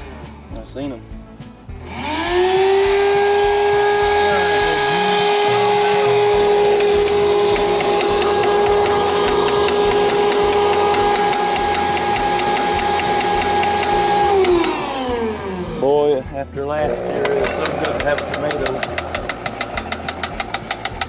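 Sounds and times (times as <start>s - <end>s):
small motor whining: 1.8s - 16.0s, 16.9s - 21.0s
faint regular ticking: 16.9s - 21.0s.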